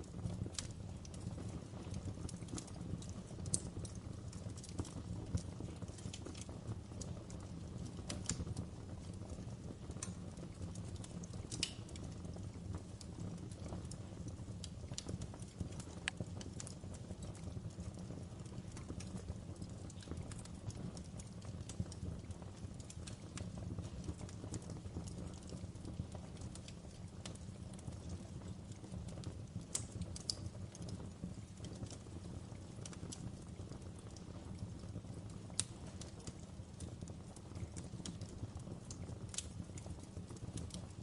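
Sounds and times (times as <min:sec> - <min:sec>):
wood fire crackling: 0:00.0 - 0:41.0.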